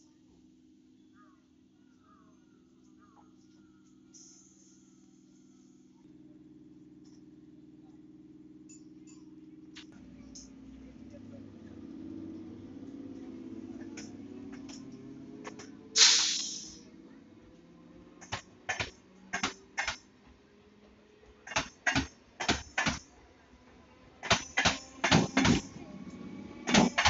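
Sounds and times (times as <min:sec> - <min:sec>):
loud hiss: 0:16.0 - 0:16.8
train wheels clacking over rail joints: 0:18.2 - 0:20.1, 0:21.3 - 0:23.2, 0:24.2 - 0:25.8, 0:26.6 - 0:27.0.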